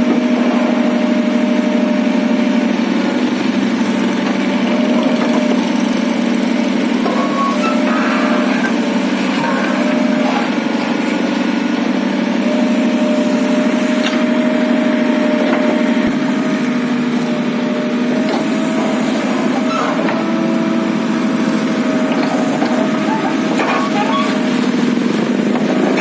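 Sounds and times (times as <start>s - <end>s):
small engine running: 1.5s - 13.8s.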